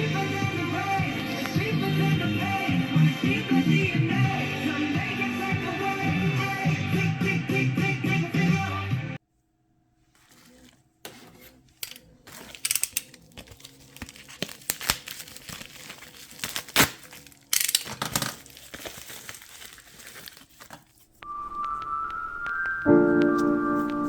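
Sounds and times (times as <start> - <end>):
wrapping crinkling and rustling: 10.1 - 21.7.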